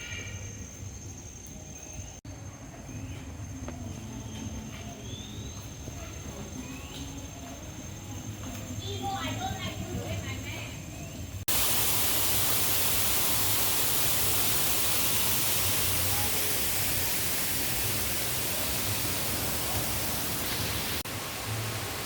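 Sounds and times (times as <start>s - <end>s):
loud rushing hiss: 11.5s - 22.0s.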